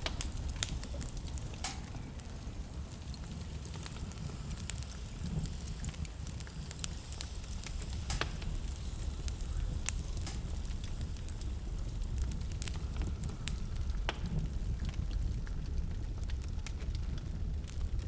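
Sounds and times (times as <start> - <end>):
sharp pops and snaps: 0.0 - 2.4, 3.0 - 15.0
rumble of flames: 0.0 - 18.0
wood fire crackling: 0.0 - 18.0.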